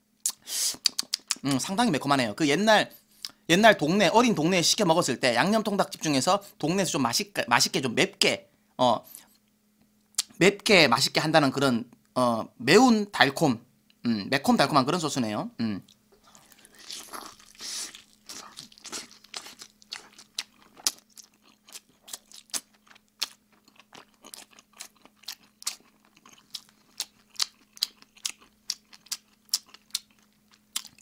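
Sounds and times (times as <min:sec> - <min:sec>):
faint steady hum: 0:00.0 - 0:31.0
open-mouthed chewing with lip smacks: 0:00.2 - 0:01.5, 0:15.9 - 0:31.0.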